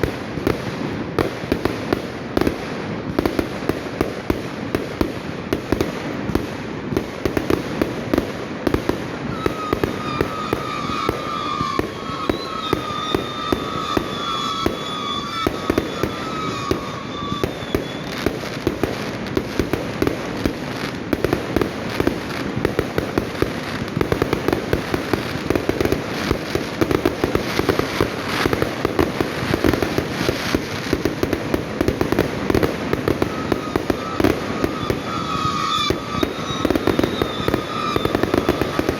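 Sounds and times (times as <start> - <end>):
fireworks banging and crackling: 0.0 - 38.9
wavering high tone: 9.4 - 18.2, 33.1 - 38.9.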